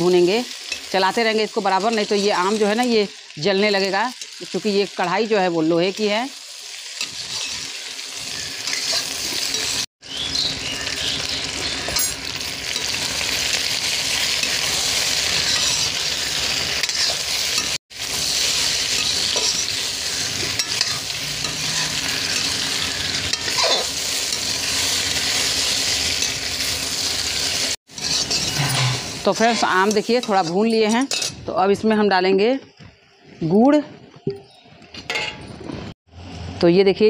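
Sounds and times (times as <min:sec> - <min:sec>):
food sizzling in oil: 0:00.0 - 0:32.2
metal ladle scraping pan: 0:16.8 - 0:25.6, 0:27.9 - 0:31.4.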